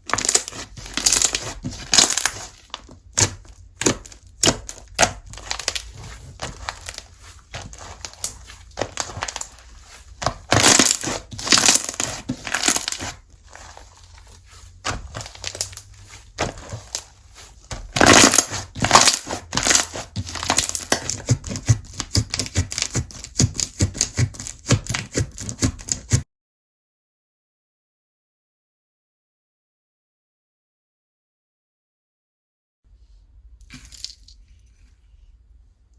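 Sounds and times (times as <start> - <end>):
hands squishing slime: 0.0 - 26.2.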